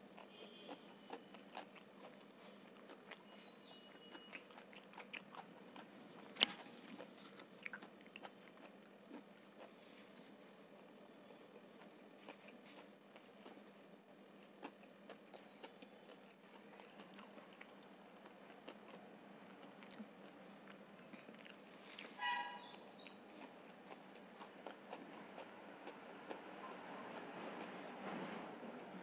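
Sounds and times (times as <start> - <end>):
wet chewing clicks: 0.2 - 9.8, 14.6 - 27.3
faint high whistle: 3.3 - 4.4, 22.2 - 24.6.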